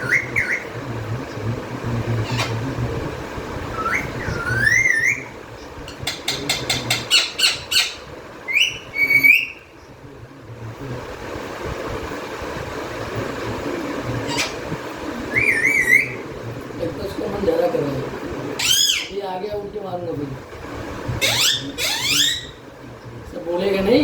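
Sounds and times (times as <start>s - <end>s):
parrot whistling: 0.0s - 0.8s, 3.7s - 9.7s, 15.3s - 16.2s, 18.6s - 19.1s, 21.2s - 22.6s
low steady hum: 0.0s - 24.0s
parrot sharp calls: 3.7s - 9.7s, 14.2s - 16.2s, 18.6s - 19.2s, 21.2s - 22.6s.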